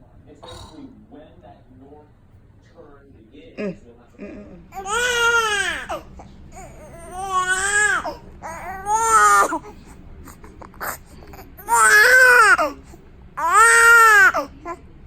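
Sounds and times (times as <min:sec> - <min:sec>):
newborn baby crying: 0:04.7 - 0:14.8.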